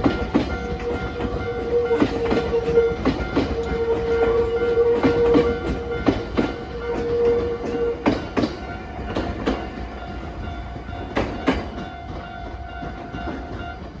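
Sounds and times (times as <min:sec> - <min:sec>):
train rumble: 0:00.0 - 0:14.0
train wheels clacking on rail joints: 0:00.0 - 0:14.0.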